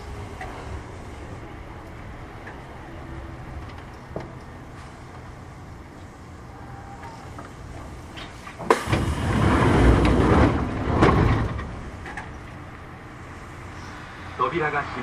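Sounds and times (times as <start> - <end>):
train running rumble: 0.0 - 14.9
train rumbling and rattling: 0.0 - 15.0.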